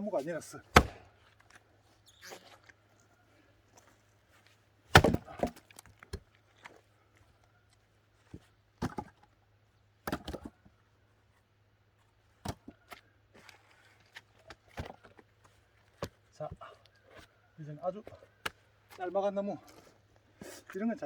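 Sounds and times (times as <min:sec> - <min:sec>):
axe splitting firewood: 0:00.6 - 0:01.6, 0:04.9 - 0:06.8, 0:08.3 - 0:09.3, 0:10.0 - 0:10.7, 0:12.4 - 0:17.3.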